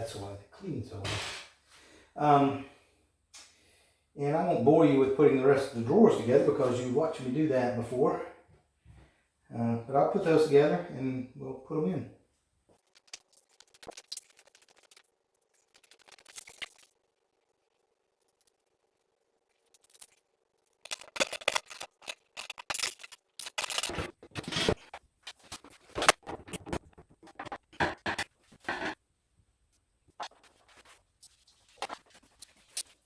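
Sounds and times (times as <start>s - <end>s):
wooden parts clicking and scraping: 18.2s - 29.0s.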